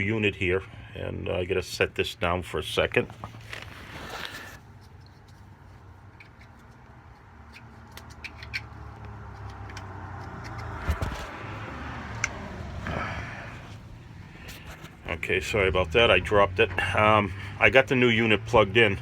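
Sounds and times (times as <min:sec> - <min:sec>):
parts clicking and rattling: 0:03.1 - 0:11.5.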